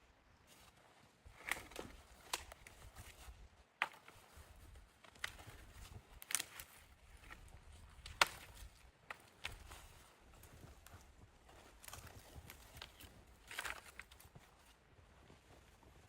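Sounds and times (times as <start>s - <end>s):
wood being chopped: 8.0s - 9.6s.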